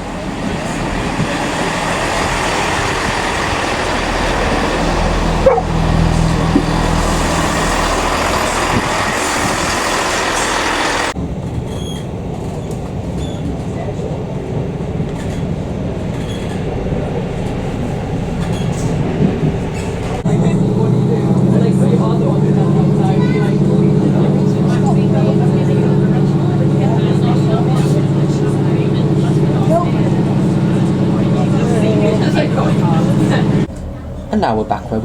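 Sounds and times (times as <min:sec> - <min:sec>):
diesel train rumble: 0:00.0 - 0:35.0.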